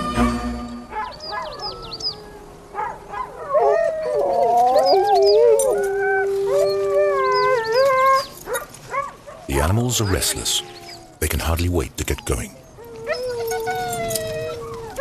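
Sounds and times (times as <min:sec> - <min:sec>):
dogs yelping: 0:00.9 - 0:11.2, 0:12.2 - 0:15.0
huskies howling: 0:00.9 - 0:11.2, 0:12.6 - 0:15.0.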